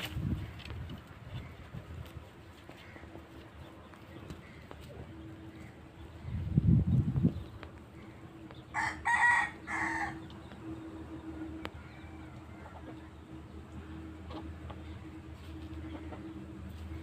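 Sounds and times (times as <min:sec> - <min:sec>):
loud low rumbling: 0:05.0 - 0:08.5
rooster crowing: 0:08.7 - 0:10.3, 0:11.8 - 0:13.1.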